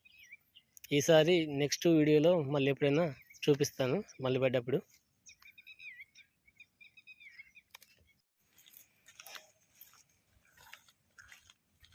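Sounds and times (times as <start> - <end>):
faint bird chirping: 0.0 - 1.0, 4.9 - 8.2.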